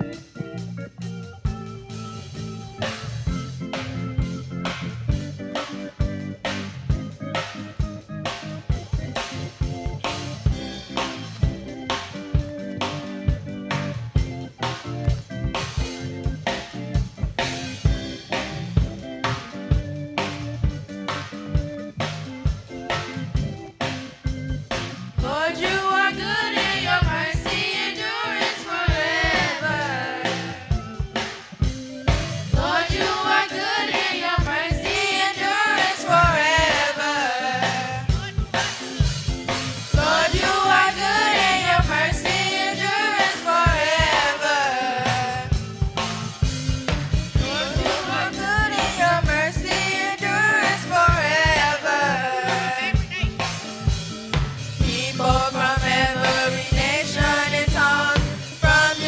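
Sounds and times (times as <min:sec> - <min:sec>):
drum kit beat: 0:00.0 - 0:59.0
choir singing gospel song: 0:24.8 - 0:59.0.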